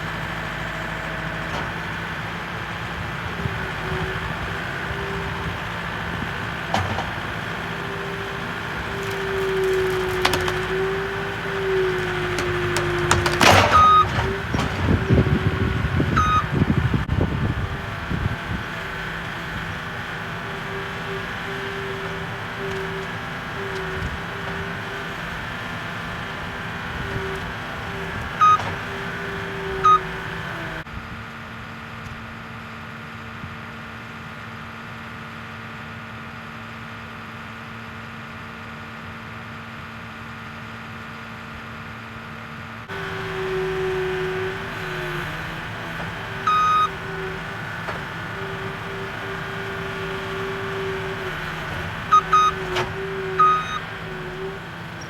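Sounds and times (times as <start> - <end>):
small engine running: 0.0 - 30.9, 42.9 - 55.0.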